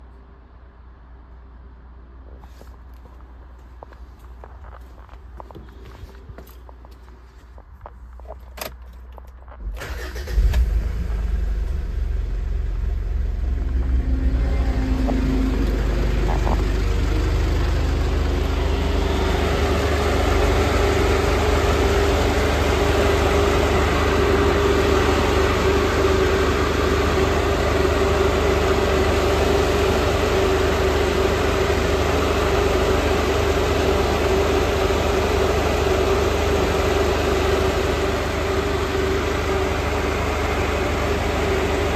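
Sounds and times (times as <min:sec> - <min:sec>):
diesel engine starting and idling: 0:09.5 - 0:41.9
radiator fan rushing drone: 0:11.9 - 0:40.9.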